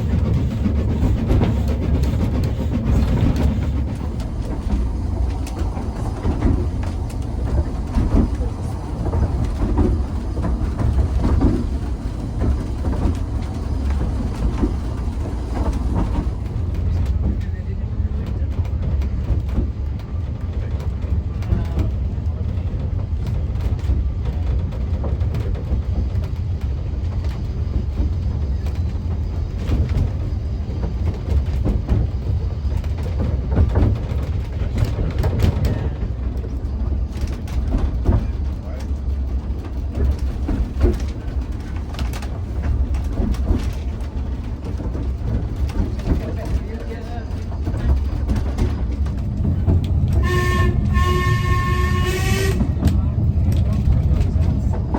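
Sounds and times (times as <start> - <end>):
wheels rumbling on rails: 0.0 - 54.9
wheels and couplings clicking: 23.2 - 50.2.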